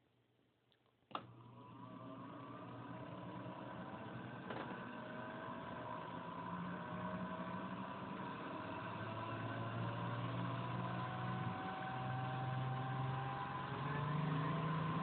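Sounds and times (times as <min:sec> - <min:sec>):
motor hum and whine: 0:01.2 - 0:15.0.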